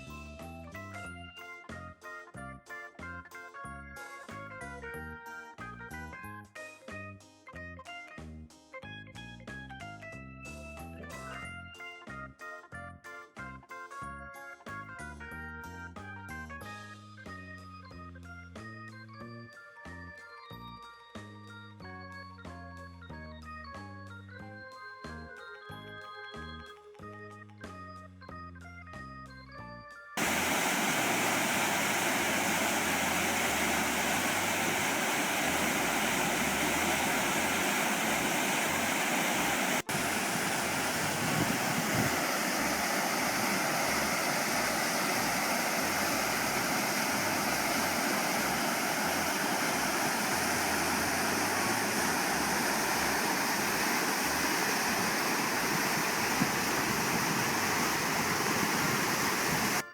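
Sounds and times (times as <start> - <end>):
music: 0.0 - 39.0, 45.8 - 57.0
river water rushing: 30.2 - 59.8.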